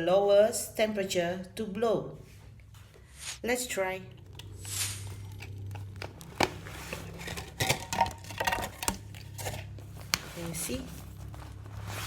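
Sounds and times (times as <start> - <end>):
steady low hum: 0.0 - 12.0
plastic bottle crinkling: 4.1 - 11.9.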